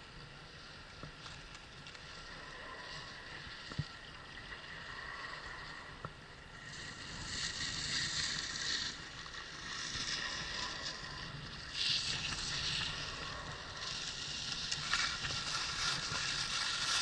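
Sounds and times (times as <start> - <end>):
wind noise on microphone: 6.6 - 17.0
skis scraping over snow: 6.7 - 17.0.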